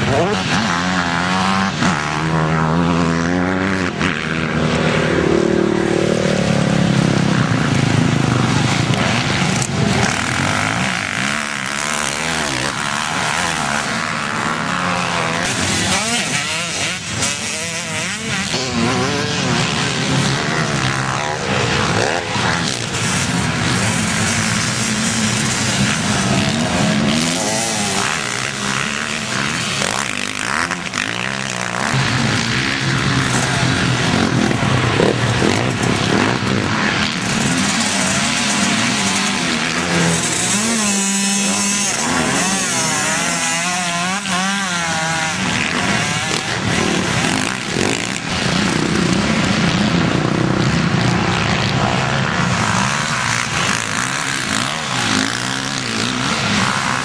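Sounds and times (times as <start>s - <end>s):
higher-pitched motorcycle engine: 0.0s - 57.0s
motorcycle engine drone: 0.0s - 57.0s.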